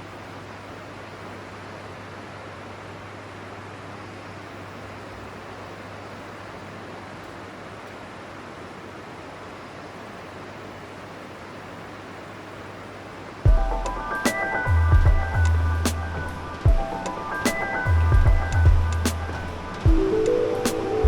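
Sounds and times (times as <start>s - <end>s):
constant low hum: 12.9s - 21.0s.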